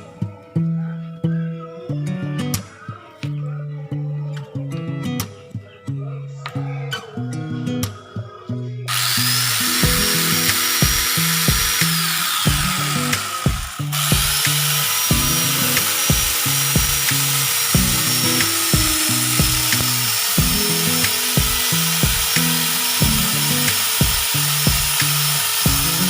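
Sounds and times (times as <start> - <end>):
background music: 0.0 - 26.0
angle grinder saw cutting wood: 8.9 - 26.0.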